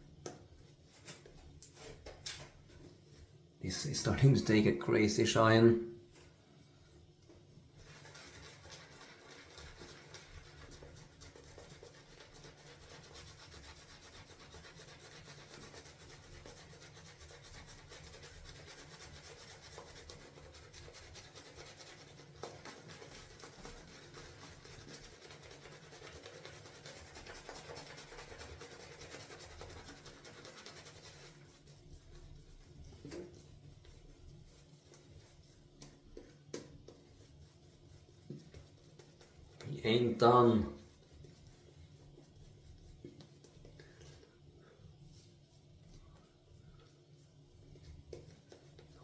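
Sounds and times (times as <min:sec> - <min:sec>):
shaving brush swirling in lather: 0:07.6 - 0:49.0.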